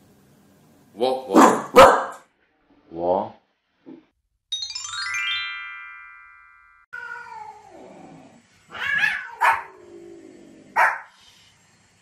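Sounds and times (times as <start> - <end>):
small dog barking: 1.3 - 2.2, 8.8 - 9.8, 10.7 - 11.1
rising sweep into ringing chime: 4.5 - 6.9.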